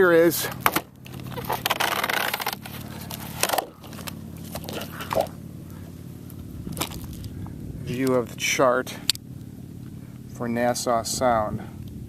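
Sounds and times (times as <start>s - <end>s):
paper chart crinkling: 1.1s - 5.3s.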